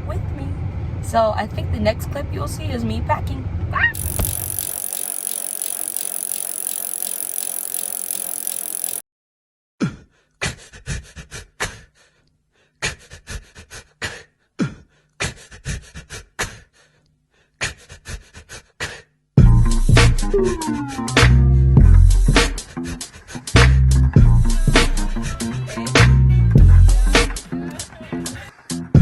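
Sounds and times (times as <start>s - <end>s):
objects knocking and clicking: 4.0s - 9.0s.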